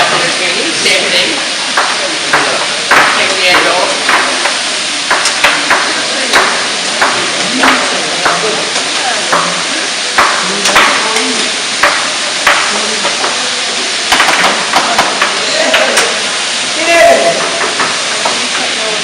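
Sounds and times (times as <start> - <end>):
vegetables sizzling in oil: 0.0 - 19.0
knife chopping on cutting board: 1.8 - 4.5, 10.2 - 11.2.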